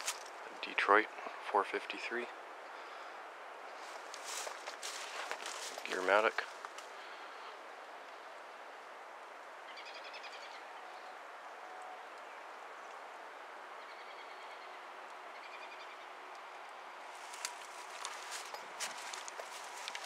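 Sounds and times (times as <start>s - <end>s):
outdoor background hiss: 0.0s - 20.0s
bird singing trills: 9.7s - 12.5s, 13.8s - 16.1s.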